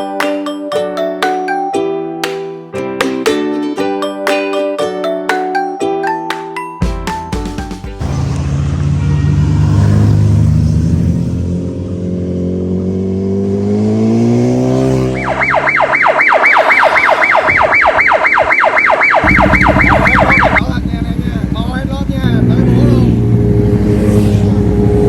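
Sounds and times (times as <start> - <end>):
vehicle engine revving: 8.0 - 25.0
warbling siren: 14.9 - 20.7.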